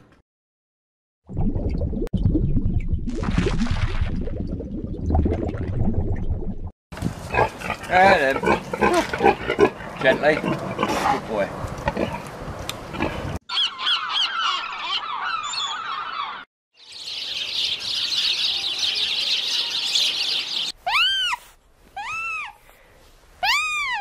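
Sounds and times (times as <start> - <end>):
sea otters squealing: 20.8 - 21.4, 23.4 - 24.0.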